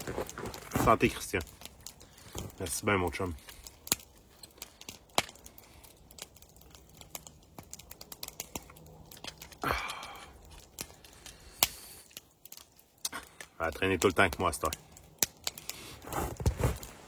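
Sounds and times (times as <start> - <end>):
sharp clicks and snaps: 3.3 - 15.8.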